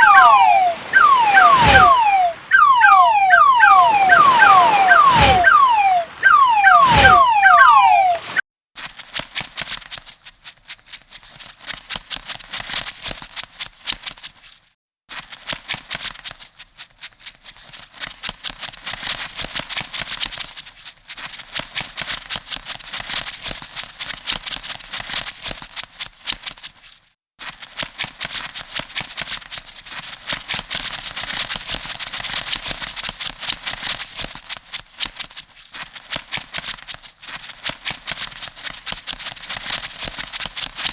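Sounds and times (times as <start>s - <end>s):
quick falling chirps: 0.0s - 8.4s.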